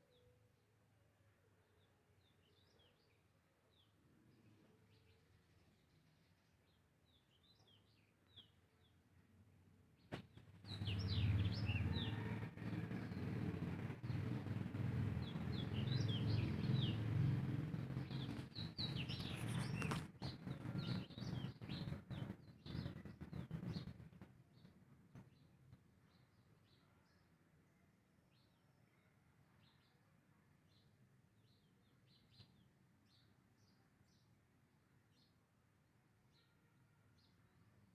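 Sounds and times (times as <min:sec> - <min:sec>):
small birds chirping: 0:10.0 - 0:27.4, 0:30.7 - 0:34.4
close rustling and crackling: 0:18.0 - 0:24.0.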